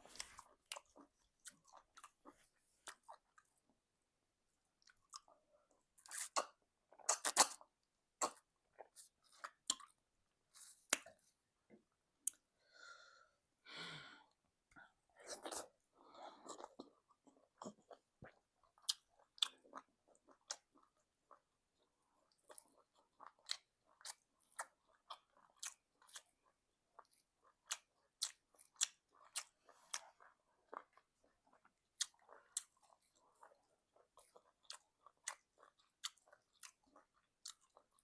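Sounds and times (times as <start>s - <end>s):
wet chewing and lip smacks: 16.4s - 38.0s.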